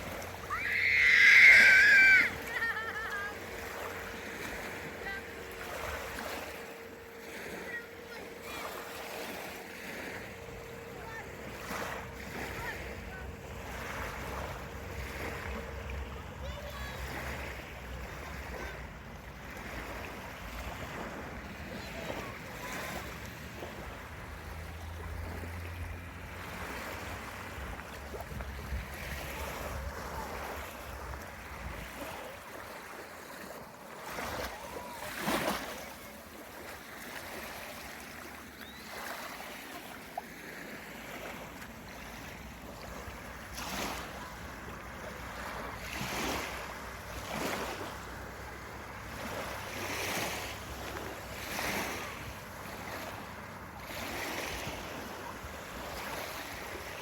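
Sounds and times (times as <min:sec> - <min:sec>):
small waves breaking on beach: 0:00.0 - 0:57.0
low steady rumble: 0:01.8 - 0:31.8.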